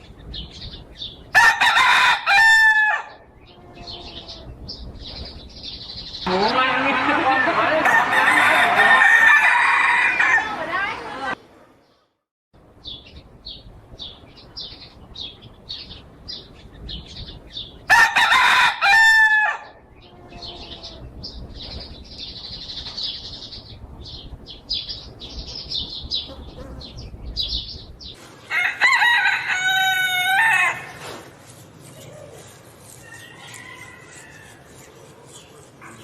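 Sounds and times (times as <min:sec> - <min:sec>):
rooster crowing: 0:01.4 - 0:04.4, 0:07.2 - 0:10.7, 0:17.9 - 0:21.0, 0:28.5 - 0:31.0, 0:33.0 - 0:34.8.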